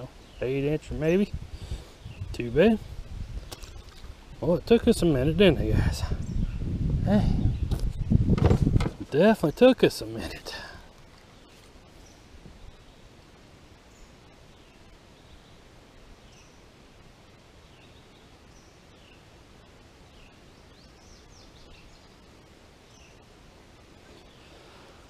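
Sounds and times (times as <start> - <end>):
steady background hiss: 0.0 - 25.0.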